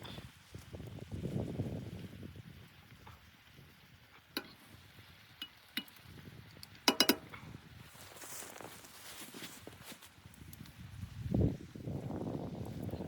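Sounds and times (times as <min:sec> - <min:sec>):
light metallic clinks: 0:06.9 - 0:07.3.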